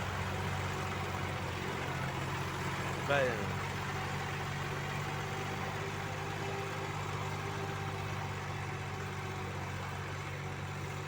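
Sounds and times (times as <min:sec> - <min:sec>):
diesel engine idling: 0:00.0 - 0:06.2.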